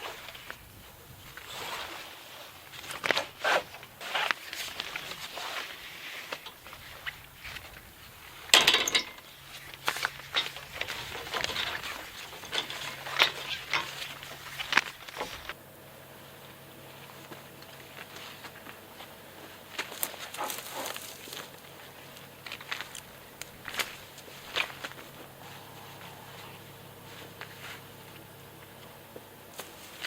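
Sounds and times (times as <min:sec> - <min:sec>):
faint low hum: 0:00.0 - 0:30.0
rustling handling noises: 0:00.0 - 0:30.0
footsteps and scuffing: 0:16.4 - 0:30.0.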